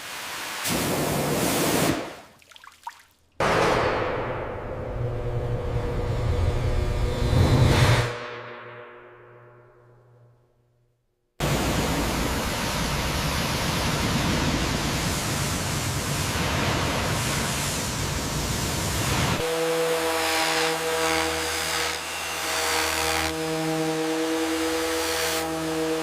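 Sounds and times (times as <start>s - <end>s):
loud steady hiss: 11.4s - 19.5s.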